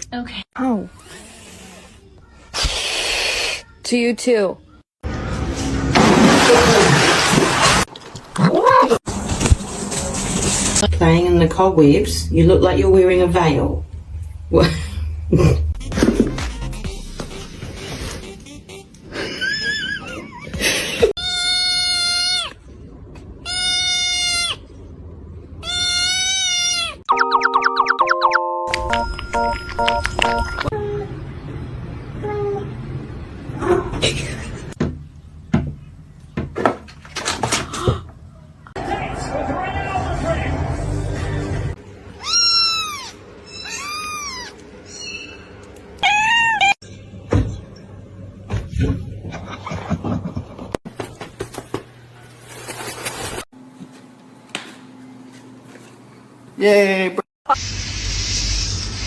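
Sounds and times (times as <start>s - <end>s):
cat meowing: 25.6s - 27.0s, 42.2s - 44.6s, 46.0s - 46.8s
animal calling: 42.2s - 46.8s.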